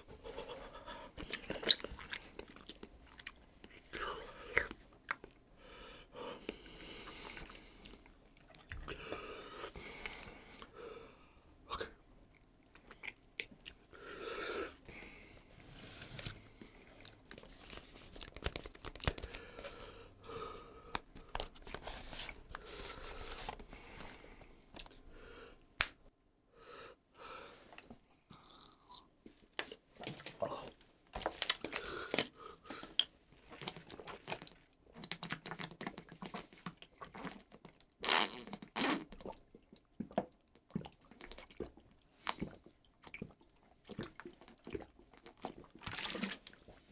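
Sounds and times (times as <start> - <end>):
person chewing crunchy chip: 28.3 - 29.1.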